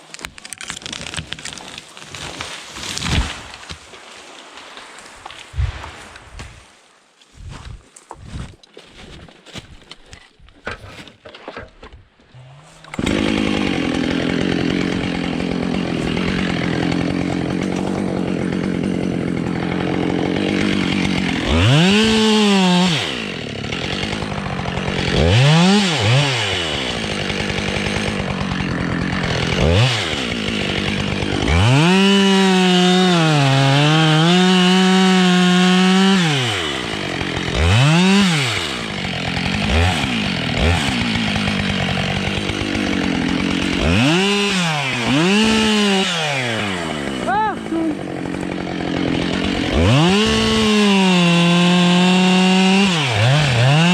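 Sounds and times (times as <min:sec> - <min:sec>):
chainsaw idling and revving: 0:12.4 - 0:53.9.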